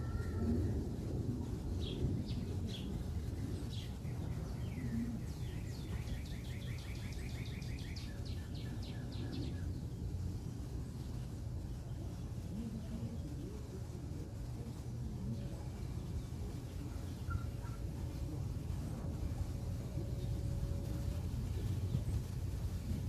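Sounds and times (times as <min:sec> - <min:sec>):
low background rumble: 0:00.0 - 0:23.0
songbird trilling: 0:03.7 - 0:09.7.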